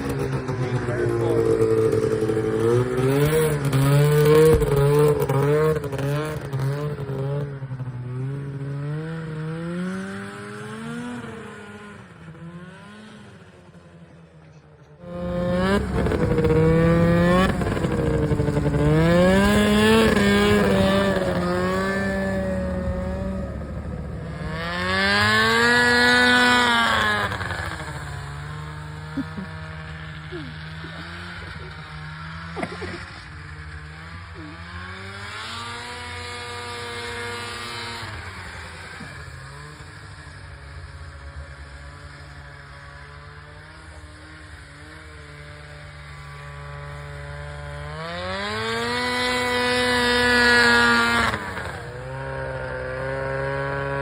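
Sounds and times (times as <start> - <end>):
snowmobile engine revving: 0.0 - 13.8, 14.5 - 54.0.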